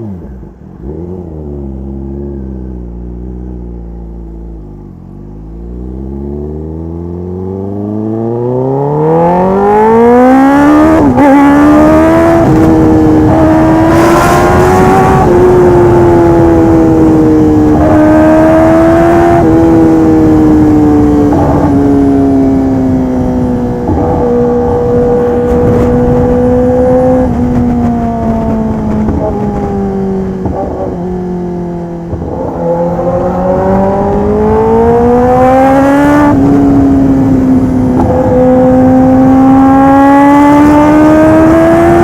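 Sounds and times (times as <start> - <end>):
motorcycle engine accelerating hard: 0.0 - 42.0.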